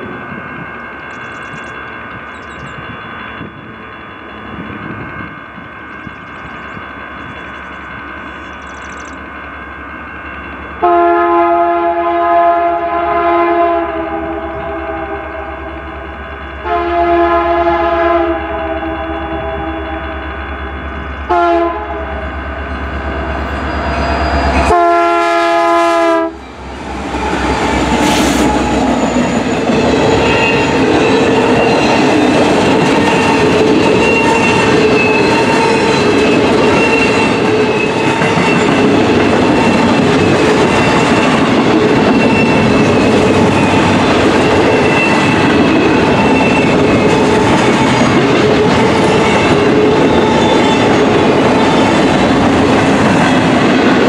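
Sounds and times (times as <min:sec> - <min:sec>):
diesel locomotives passing: 0:00.0 - 0:54.0
wheels rumbling and clattering on rails: 0:00.0 - 0:54.0
train horn blast: 0:10.8 - 0:16.0, 0:16.6 - 0:22.4, 0:23.1 - 0:26.5, 0:27.1 - 0:29.0.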